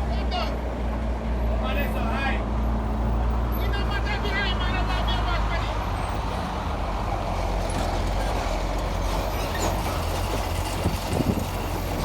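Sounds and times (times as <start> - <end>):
diesel machinery engine running: 2.5 - 12.0.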